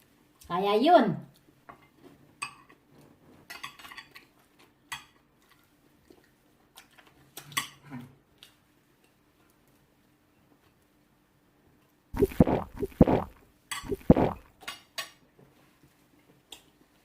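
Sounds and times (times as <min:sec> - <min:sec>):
dishes and cutlery clinking: 0:03.5 - 0:04.3.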